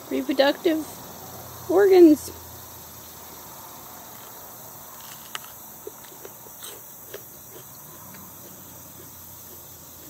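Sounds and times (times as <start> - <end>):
faint steady hiss: 0.0 - 10.0
pepper crunching when chewed: 5.0 - 10.0.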